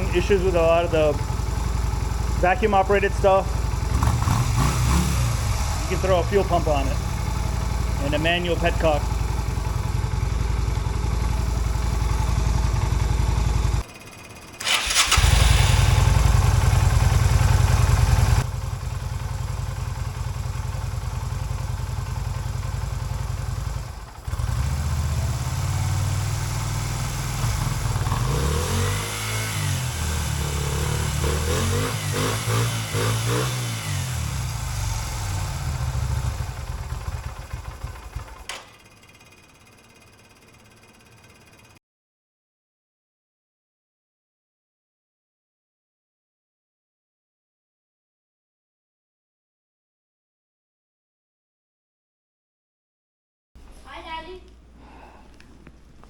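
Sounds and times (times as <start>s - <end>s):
motorcycle engine revving: 0.0s - 41.8s.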